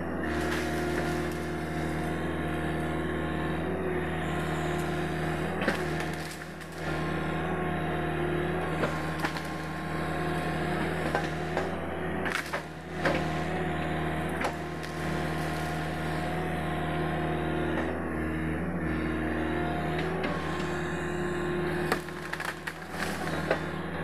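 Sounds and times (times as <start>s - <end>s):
excavator engine running: 0.0s - 24.0s
wood cracking and snapping: 0.4s - 2.2s, 4.7s - 7.0s, 8.8s - 11.7s, 12.3s - 13.3s, 14.4s - 16.1s, 21.8s - 23.7s.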